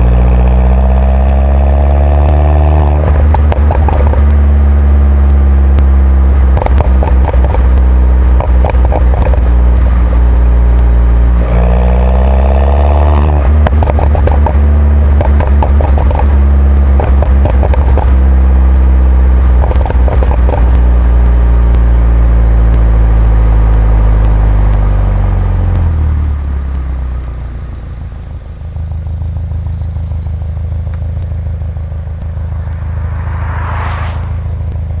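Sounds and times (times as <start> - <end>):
car engine driving: 0.0 - 35.0
exhaust crackles: 0.0 - 35.0
rising and falling whine: 32.1 - 35.0.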